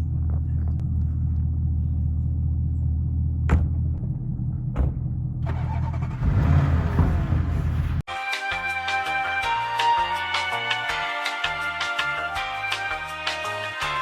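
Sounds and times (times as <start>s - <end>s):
car engine droning: 0.0s - 8.1s
sharp knocks: 4.7s - 5.2s.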